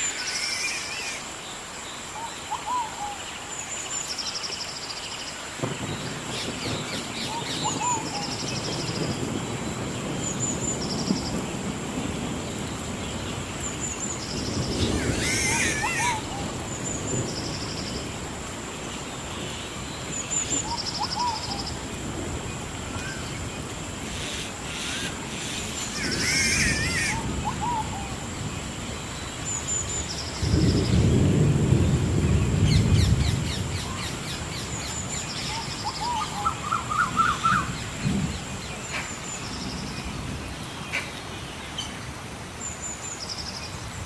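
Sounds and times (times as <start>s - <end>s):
bird warbling call: 14.8s - 16.5s, 24.1s - 28.2s, 35.4s - 37.8s.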